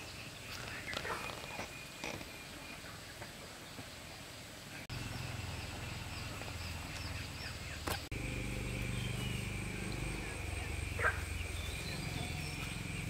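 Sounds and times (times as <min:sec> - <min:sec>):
steady background hiss: 0:00.0 - 0:13.0
low hum: 0:04.9 - 0:13.0.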